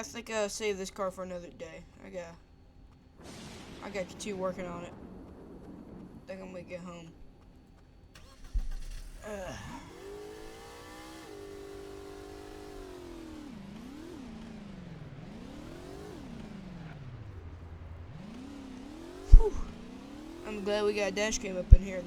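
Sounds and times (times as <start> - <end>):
car accelerating: 7.4 - 22.0
car engine starting and revving: 8.0 - 22.0.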